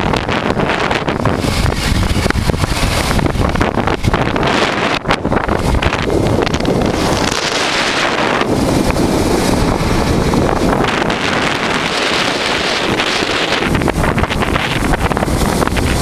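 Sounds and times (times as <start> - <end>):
motorcycle running noise: 0.0 - 16.0
wind buffeting microphone: 0.0 - 16.0.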